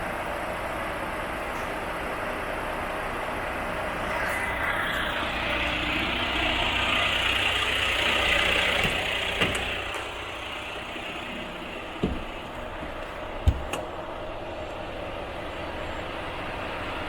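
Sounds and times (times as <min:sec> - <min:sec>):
diesel truck idling: 0:00.0 - 0:17.0
short thumps: 0:12.0 - 0:13.9.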